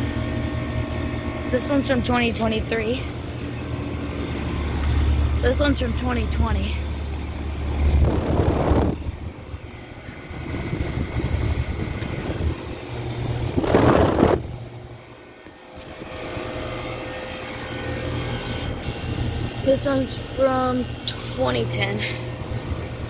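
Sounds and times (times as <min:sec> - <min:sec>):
air conditioning units humming: 0:00.0 - 0:23.0
loud rush of air: 0:06.9 - 0:16.6.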